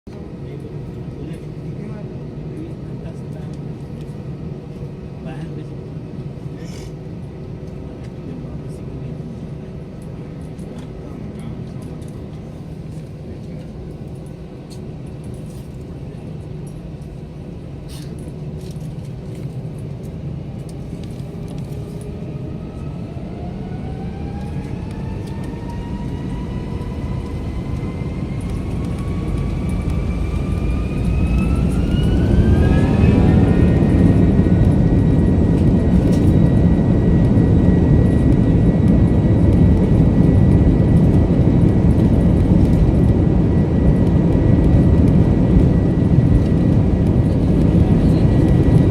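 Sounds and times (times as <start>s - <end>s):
jet engines spooling up: 17.9s - 48.9s.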